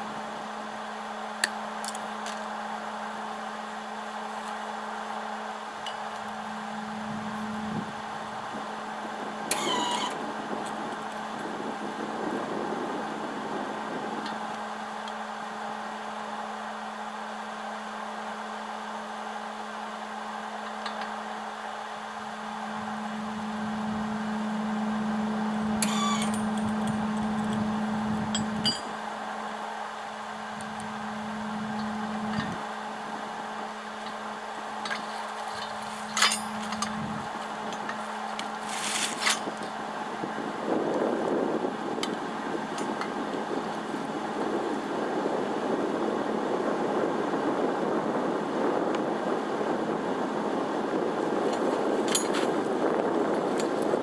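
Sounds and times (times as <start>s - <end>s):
electric arc welder humming: 22.5s - 29.0s.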